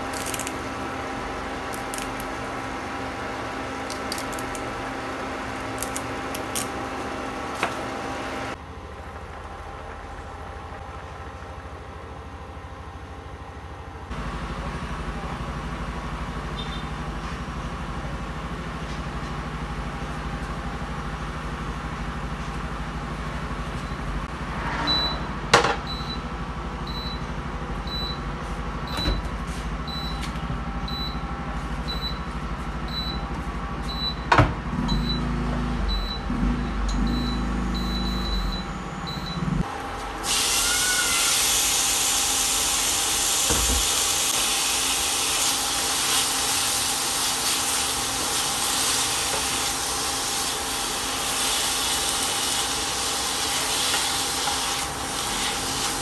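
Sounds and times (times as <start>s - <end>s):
induction cooktop hum: 0.0s - 56.0s
meat sizzling in a pan: 40.2s - 56.0s.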